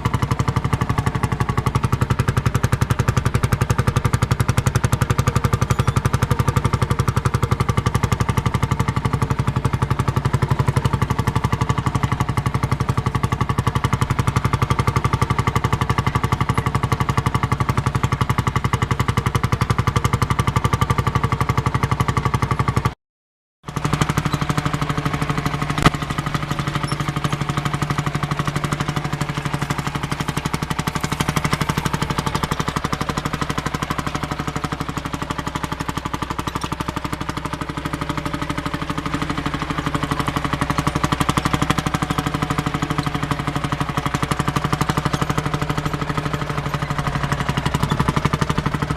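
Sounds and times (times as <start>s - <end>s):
tractor diesel engine running: 0.0s - 23.0s, 23.7s - 48.9s.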